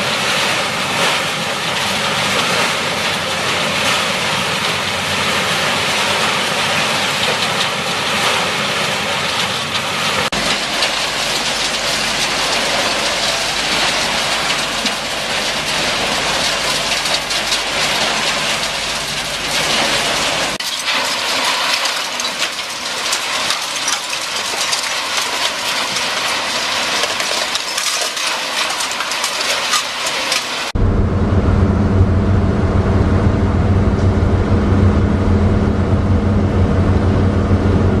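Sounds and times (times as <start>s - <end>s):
low machine hum: 10.3s - 20.6s, 30.8s - 38.0s.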